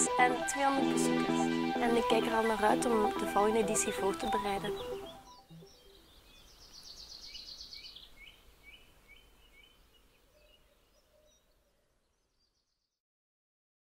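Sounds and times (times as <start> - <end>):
faint outdoor ambience: 0.0 - 12.5
bird trilling and chirping: 1.5 - 9.8.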